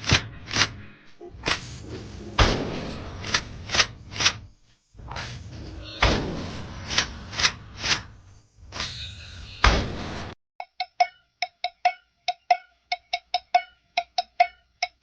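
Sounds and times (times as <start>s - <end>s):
sharp woody ticks: 10.6s - 15.0s.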